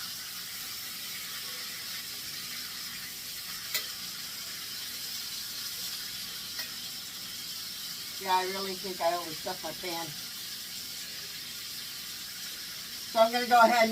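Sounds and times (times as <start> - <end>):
chicken sizzling in oil: 0.0 - 13.9
metal clicking on pan: 3.6 - 4.0, 6.5 - 6.8.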